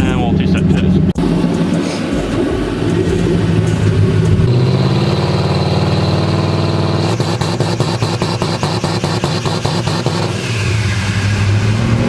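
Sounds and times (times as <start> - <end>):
engine revving: 0.0 - 12.0
engine stuttering on rev limiter: 0.0 - 12.0
turbo whine: 0.0 - 12.0.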